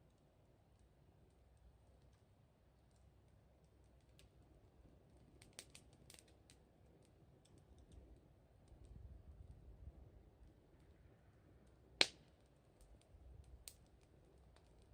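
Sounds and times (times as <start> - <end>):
wood fire crackling: 0.0 - 14.9.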